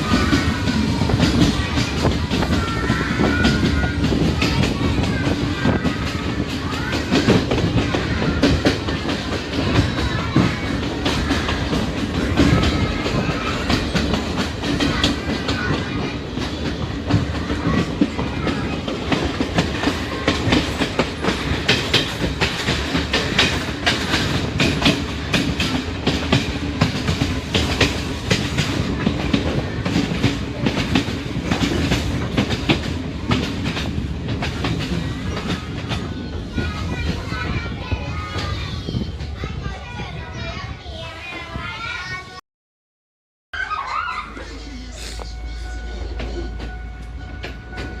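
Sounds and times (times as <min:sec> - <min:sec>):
wheels clattering over rails: 0:00.0 - 0:42.2
train rumbling: 0:00.0 - 0:42.4, 0:43.6 - 0:48.0.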